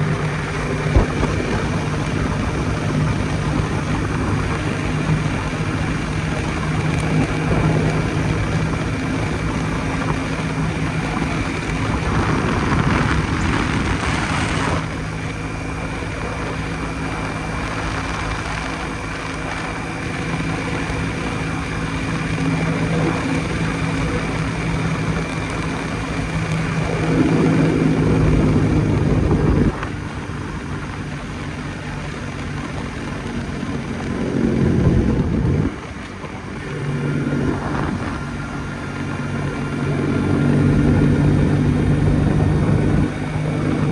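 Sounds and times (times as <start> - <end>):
motorcycle engine running: 0.0 - 43.9
loud rushing noise: 10.9 - 15.2.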